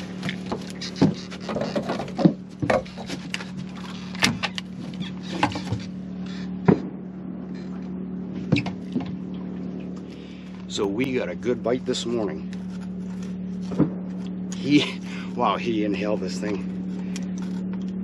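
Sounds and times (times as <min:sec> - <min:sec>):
knocks and clatter on boat: 0:00.0 - 0:06.0, 0:06.6 - 0:10.1, 0:13.6 - 0:14.2
electric trolling motor humming: 0:00.0 - 0:18.0.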